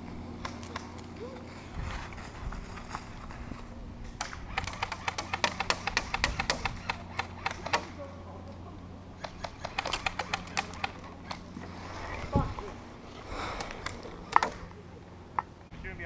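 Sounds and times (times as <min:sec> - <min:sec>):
airsoft guns rapid firing: 0:04.2 - 0:07.9, 0:09.2 - 0:11.4.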